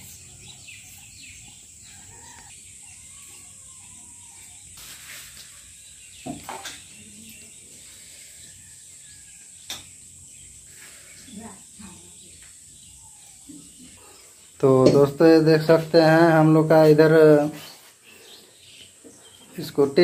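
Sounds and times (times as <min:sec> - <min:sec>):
faint bird calls: 0:00.0 - 0:05.6.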